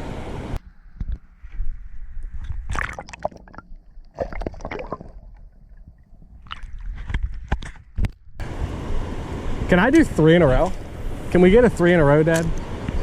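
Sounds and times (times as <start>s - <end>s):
water sloshing: 2.3s - 8.0s.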